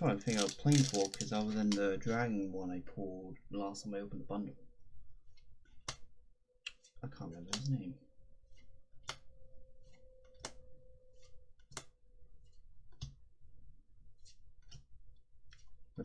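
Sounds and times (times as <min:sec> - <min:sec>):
card rustles: 0:00.0 - 0:01.7
trading cards clicking: 0:00.0 - 0:01.8.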